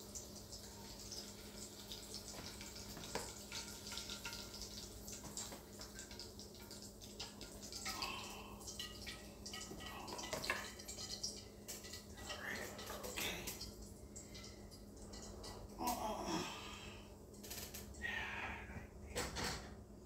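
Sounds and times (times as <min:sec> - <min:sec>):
chicken sizzling in grease: 0:00.0 - 0:15.7.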